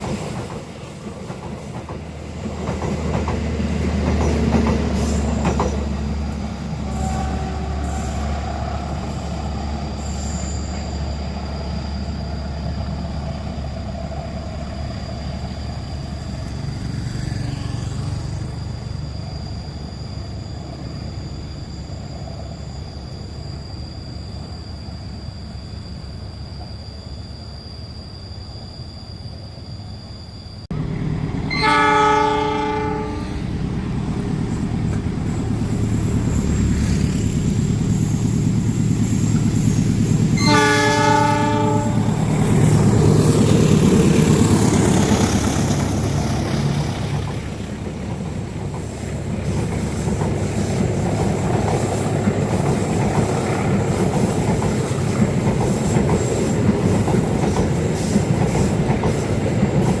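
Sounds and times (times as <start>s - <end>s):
train horn blasts: 6.8s - 8.8s, 31.4s - 33.6s, 40.4s - 42.4s.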